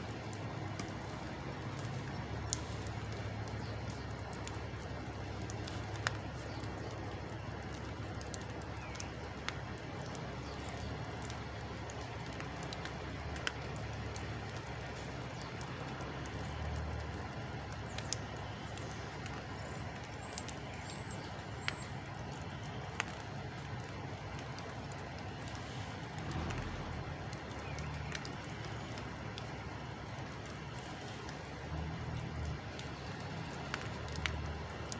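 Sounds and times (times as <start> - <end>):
sharp clicks: 1.7 - 34.9
low rumble: 25.6 - 28.2.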